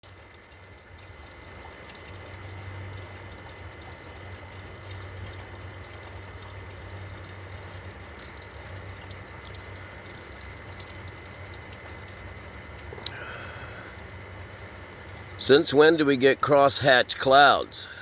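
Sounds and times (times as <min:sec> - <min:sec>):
low hum: 0:00.1 - 0:18.0
even hiss: 0:12.8 - 0:14.2.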